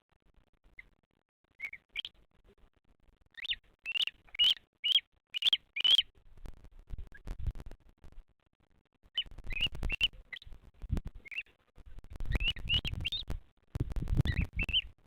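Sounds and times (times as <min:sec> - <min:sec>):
vulture chick chirping: 0:01.6 - 0:02.2, 0:03.4 - 0:06.1, 0:09.2 - 0:10.5, 0:11.2 - 0:11.6, 0:12.3 - 0:13.4, 0:14.1 - 0:15.0.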